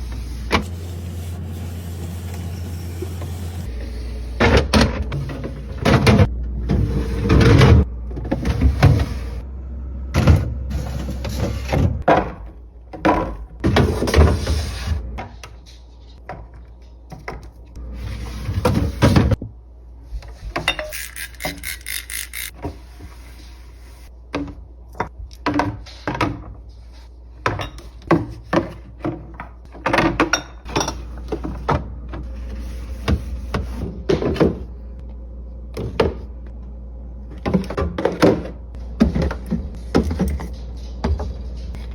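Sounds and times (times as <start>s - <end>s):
containers and shelves clunking: 0.0s - 19.6s, 24.2s - 35.0s, 35.7s - 41.9s.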